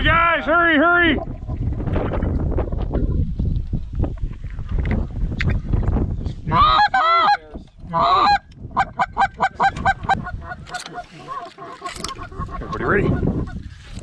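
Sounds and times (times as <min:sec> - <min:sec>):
goose honking: 0:06.5 - 0:13.2.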